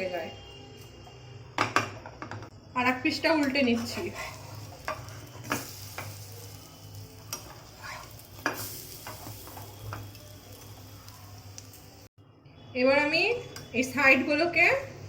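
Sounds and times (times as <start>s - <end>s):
food sizzling in oil: 2.8s - 12.2s
utensil scraping pan: 3.7s - 6.1s, 7.4s - 9.6s.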